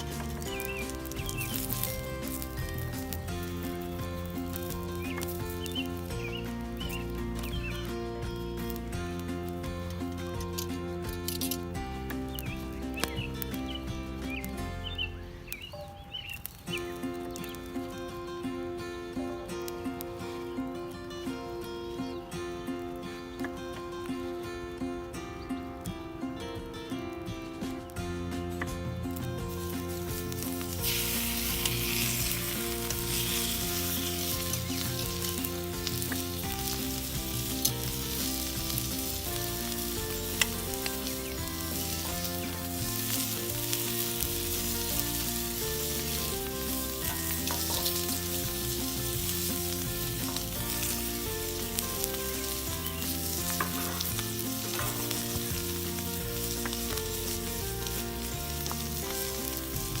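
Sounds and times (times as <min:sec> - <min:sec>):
steak sizzling in a frying pan: 0:00.0 - 0:09.3, 0:29.2 - 1:00.0
faint crackles and clicks: 0:00.0 - 0:18.7, 0:27.2 - 1:00.0.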